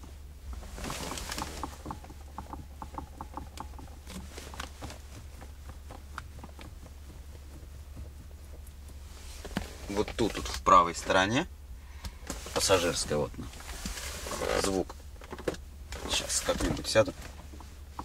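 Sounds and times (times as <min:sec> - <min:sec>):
steady low hum: 0:00.0 - 0:18.0
steering rack knocking: 0:00.6 - 0:10.3.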